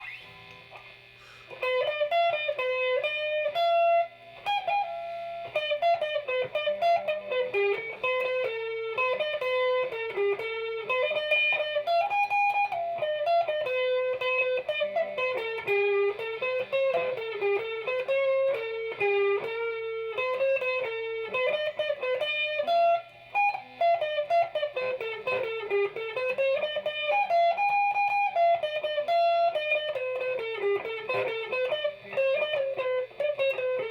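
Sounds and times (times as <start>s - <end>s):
guitar picking a melody: 0.0s - 33.9s.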